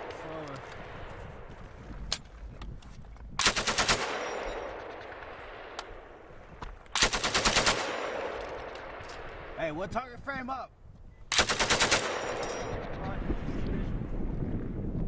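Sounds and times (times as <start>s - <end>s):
machine gun bursts: 3.4s - 4.3s, 7.0s - 8.1s, 11.3s - 12.7s
rolling echo: 3.6s - 9.6s.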